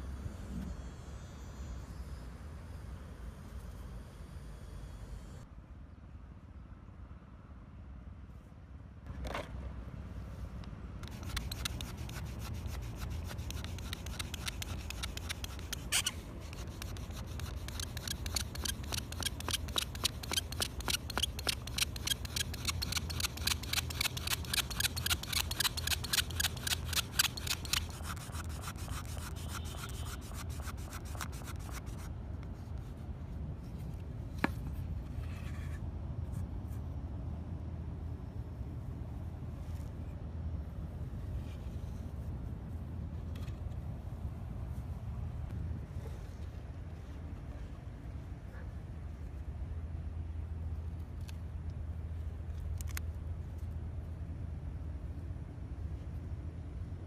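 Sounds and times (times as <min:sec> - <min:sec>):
rough scraping on hard surface: 0:11.0 - 0:32.0.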